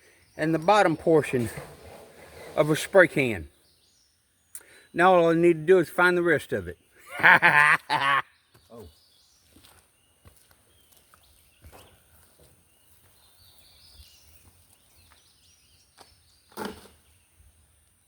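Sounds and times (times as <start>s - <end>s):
knocks and scrapes: 1.0s - 3.3s, 16.5s - 17.1s.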